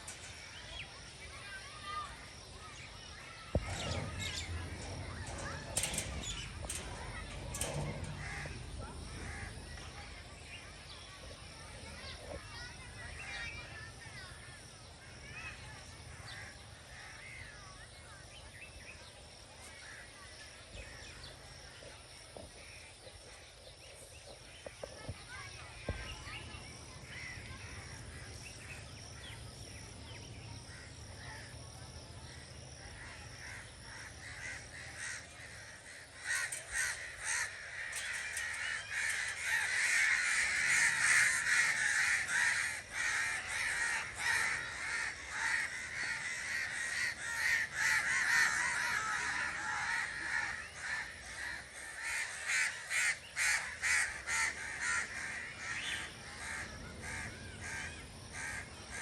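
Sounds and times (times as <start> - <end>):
flock of birds calling harshly: 32.9 - 59.0.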